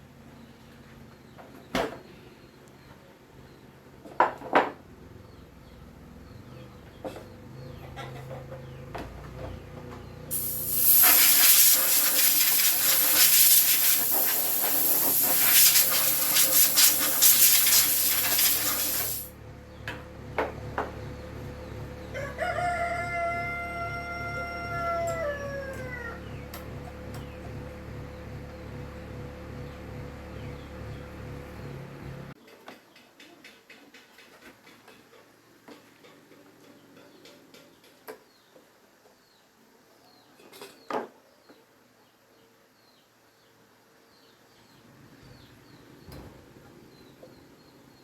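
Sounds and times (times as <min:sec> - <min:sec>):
loud spraying hiss: 0:10.3 - 0:19.3
rooster crowing: 0:22.1 - 0:26.4.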